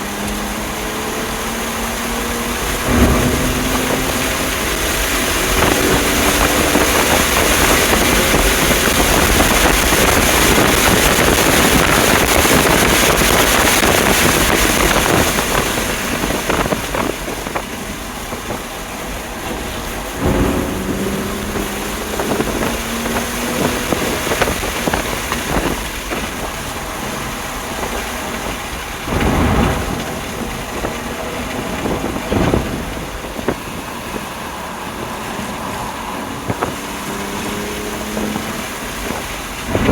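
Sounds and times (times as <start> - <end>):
car engine rising and falling: 0.0 - 39.9
wind rush: 0.0 - 39.9
short thumps: 2.8 - 6.5.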